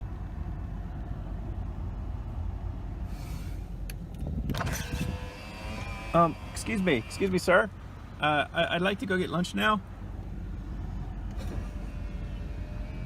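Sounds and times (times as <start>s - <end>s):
short hiss: 3.1s - 3.7s
car engine idling: 5.2s - 13.0s.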